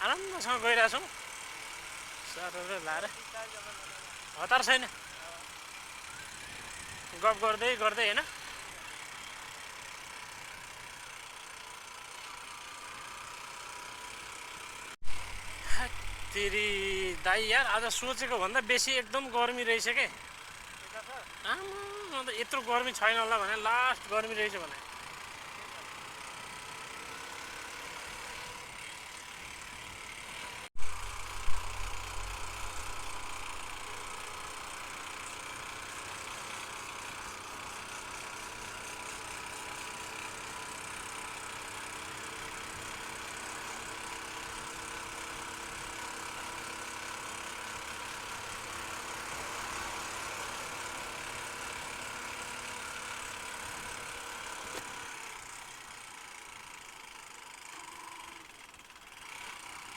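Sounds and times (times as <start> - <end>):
motorcycle engine running: 0.0 - 59.9
heavy low rumble: 15.0 - 18.2, 30.8 - 34.2
loud thumps: 30.8 - 33.4.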